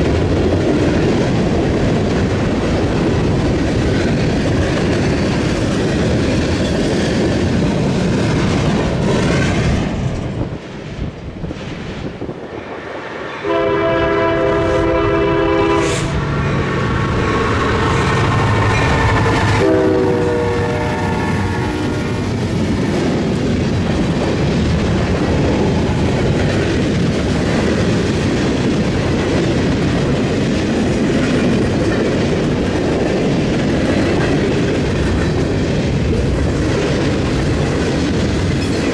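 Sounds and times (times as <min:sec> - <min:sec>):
train wheels clacking over rails: 0:00.0 - 0:38.9
locomotive air horn blasts: 0:13.4 - 0:22.3.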